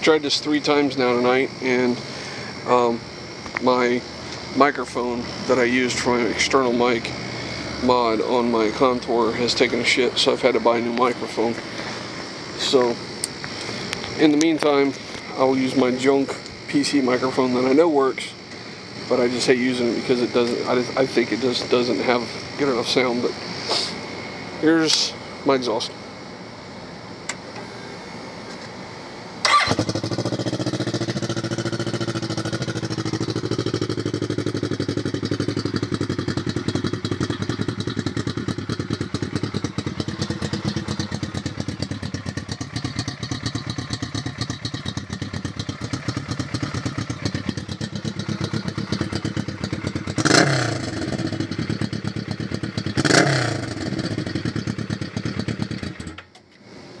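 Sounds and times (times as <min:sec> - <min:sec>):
motorcycle engine idling: 0:00.0 - 0:27.3, 0:29.4 - 0:56.3
motorcycle throttle blips: 0:29.4 - 0:56.6.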